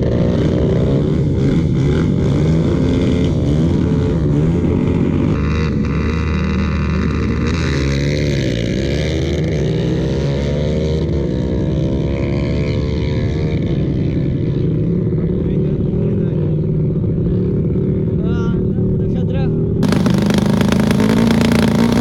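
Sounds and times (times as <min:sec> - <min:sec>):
motorcycle engines running: 0:19.8 - 0:22.0.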